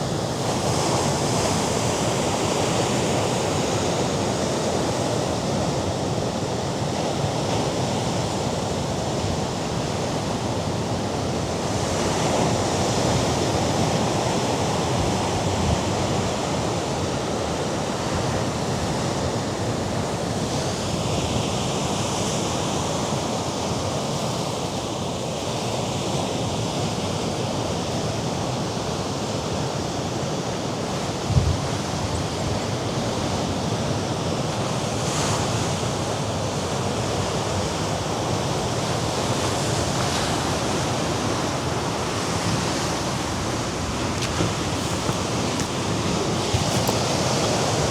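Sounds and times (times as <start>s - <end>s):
surf breaking on rocks: 41.2s - 47.9s.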